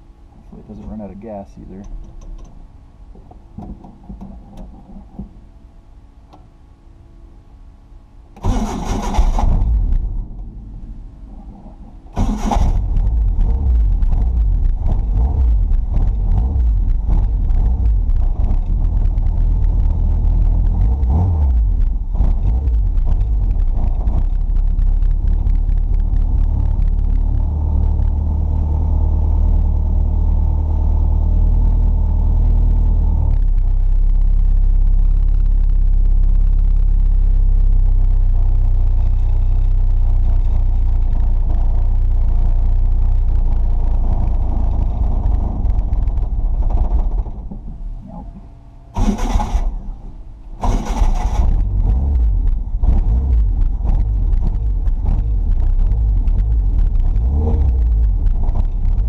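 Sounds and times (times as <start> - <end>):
engine idling: 0.0 - 59.0.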